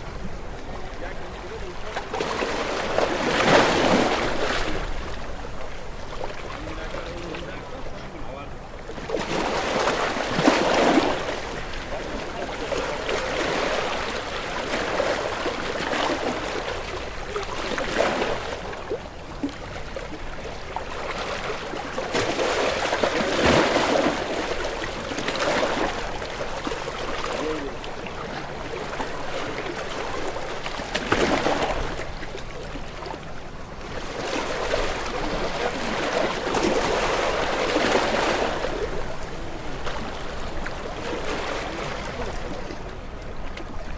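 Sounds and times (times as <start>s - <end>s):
ocean waves breaking: 0.0s - 43.9s.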